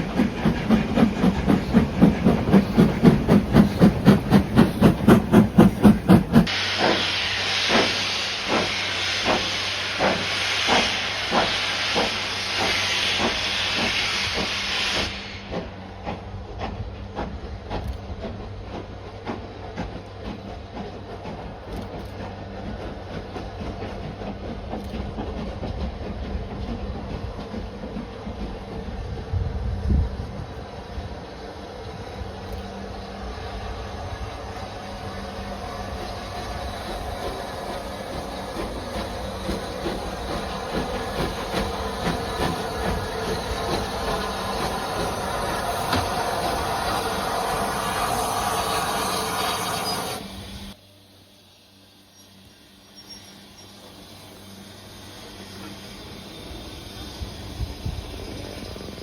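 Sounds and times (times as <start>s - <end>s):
train wheels rumbling on rail: 0.0s - 59.0s
wheels clicking over rail joints: 15.5s - 29.1s.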